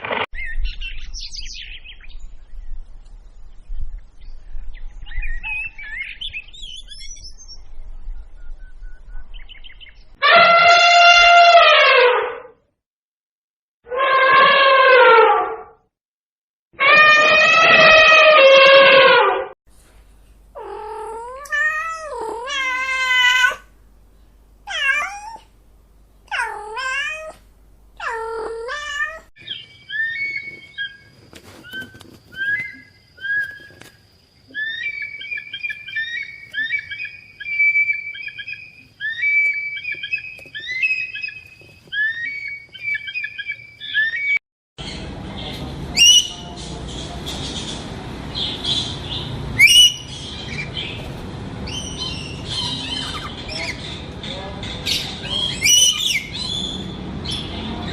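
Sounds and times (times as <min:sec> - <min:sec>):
bird chirping: 0:00.4 - 0:10.2, 0:29.4 - 0:57.9
cat meowing: 0:20.6 - 0:23.7, 0:24.7 - 0:25.5, 0:26.3 - 0:27.4, 0:28.0 - 0:29.3
sharp bird cries: 0:29.1 - 0:44.4, 0:46.0 - 0:46.5, 0:48.4 - 0:51.1, 0:51.7 - 0:54.0, 0:54.8 - 0:57.5.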